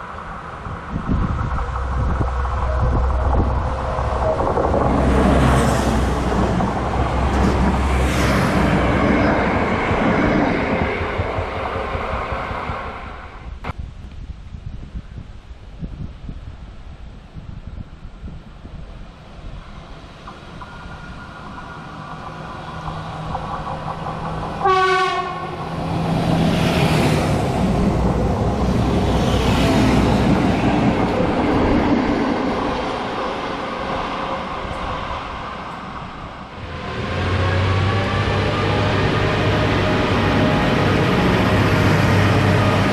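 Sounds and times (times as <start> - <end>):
diesel railcar engine hum: 0.0 - 13.8, 16.1 - 42.9
train wheel rumble: 0.0 - 13.8, 17.6 - 42.9
train horn blast: 24.6 - 25.7.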